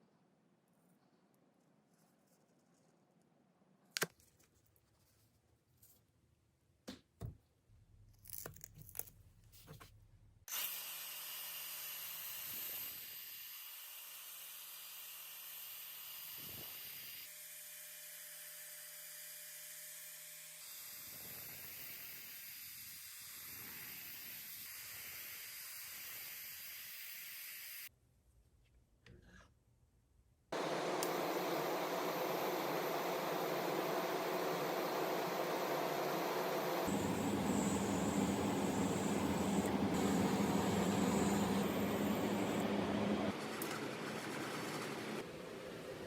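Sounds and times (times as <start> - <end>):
sandblaster hissing: 10.5 - 17.4, 20.7 - 27.9, 30.6 - 43.3.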